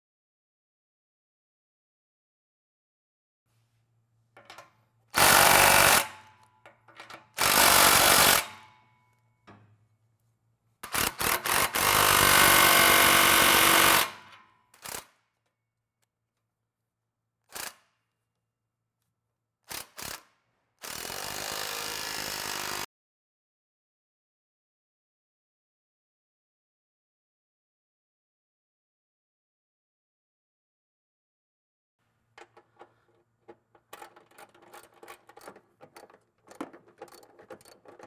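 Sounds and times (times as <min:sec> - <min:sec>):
air impact wrench bursts: 0:05.2 - 0:06.2, 0:07.4 - 0:08.6.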